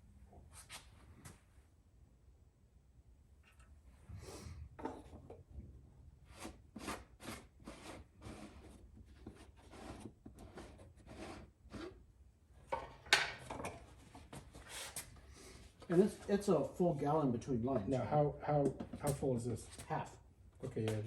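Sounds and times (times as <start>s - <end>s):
rubbing and scraping handling noises: 6.3s - 12.0s, 13.0s - 21.0s.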